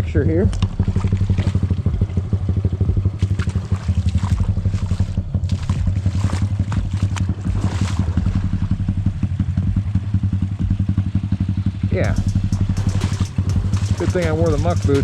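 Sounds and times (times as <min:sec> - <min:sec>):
water splashing and rushing: 0:00.0 - 0:10.3, 0:12.1 - 0:15.0
small motorbike engine idling: 0:06.6 - 0:15.0.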